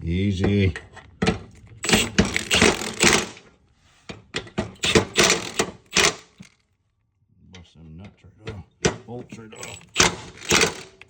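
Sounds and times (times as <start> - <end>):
impact wrench hammering: 1.2 - 3.5, 4.4 - 6.6, 9.6 - 11.0.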